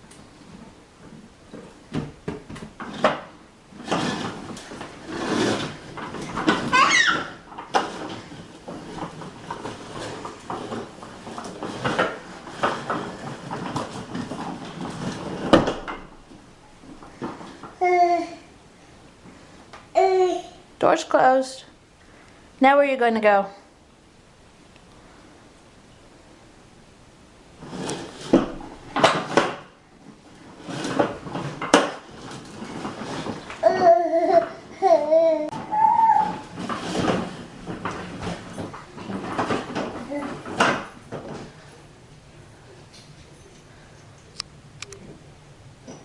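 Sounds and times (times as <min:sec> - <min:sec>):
toy tractor rolling and scraping: 0:02.8 - 0:15.7, 0:27.6 - 0:29.6, 0:30.3 - 0:41.5.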